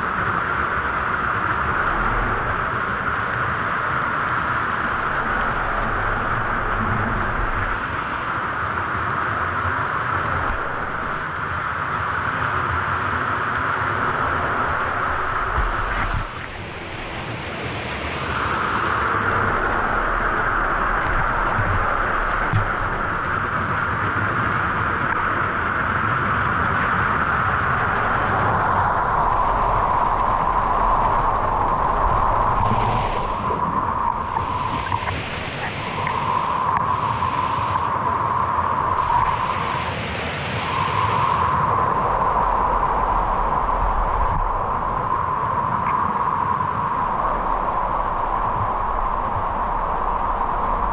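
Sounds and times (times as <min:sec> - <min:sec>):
waterfall and flowing stream: 0:16.0 - 0:19.2.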